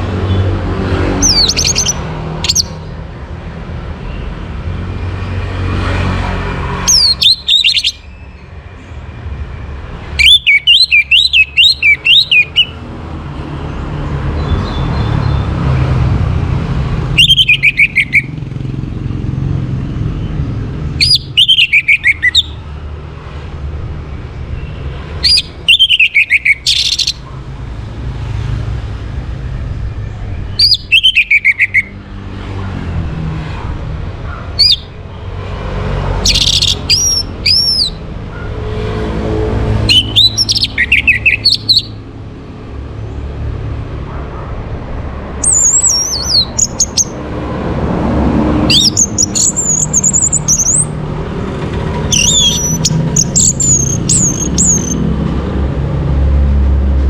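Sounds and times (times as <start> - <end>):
thrush singing whistled notes: 1.1 - 2.8, 6.7 - 8.6, 10.2 - 12.9, 17.0 - 18.5, 20.2 - 22.6, 24.6 - 27.3, 30.4 - 32.0, 34.6 - 35.0, 36.2 - 38.0, 39.8 - 42.0, 45.4 - 47.2, 48.7 - 51.0, 52.1 - 55.0.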